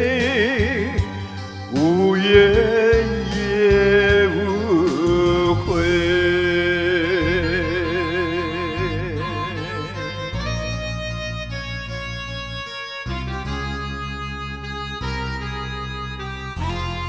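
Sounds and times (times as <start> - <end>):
person singing with vibrato: 0.0 - 10.9
pop ballad backing track: 0.0 - 17.0.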